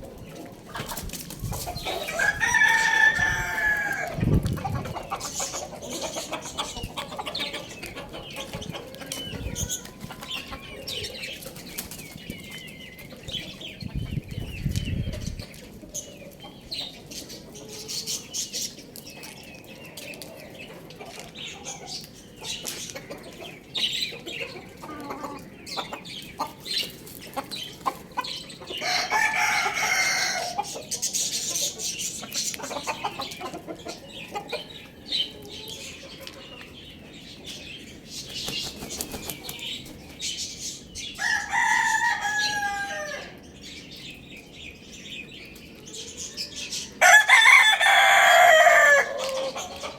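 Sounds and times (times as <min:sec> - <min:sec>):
chickens clucking: 0:00.0 - 0:49.9
loud chicken call: 0:01.9 - 0:04.2, 0:28.8 - 0:30.7, 0:41.2 - 0:43.4, 0:47.0 - 0:49.6
wings flapping: 0:38.3 - 0:39.6.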